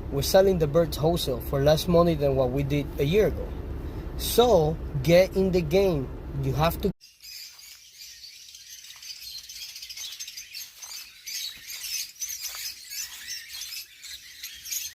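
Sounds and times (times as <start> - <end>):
lovebirds chattering: 7.0 - 15.0.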